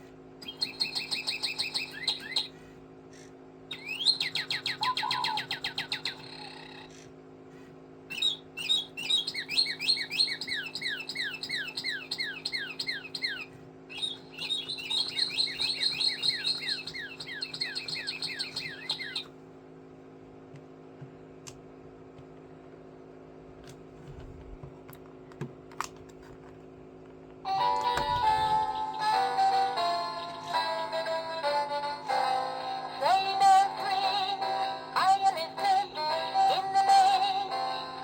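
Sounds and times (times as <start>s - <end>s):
low steady hum: 0.0s - 38.0s
bird whistling descending notes: 3.7s - 6.5s, 8.1s - 19.3s.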